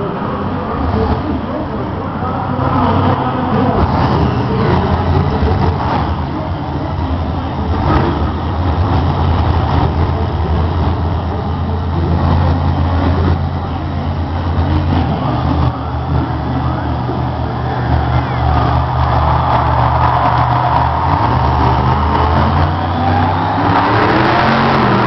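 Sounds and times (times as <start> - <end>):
monster truck engine droning: 0.0 - 25.0.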